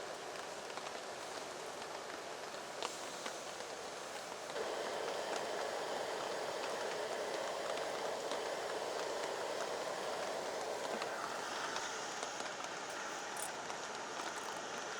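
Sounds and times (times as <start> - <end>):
heavy rain: 0.0 - 14.9
raindrop clicks: 4.5 - 14.8.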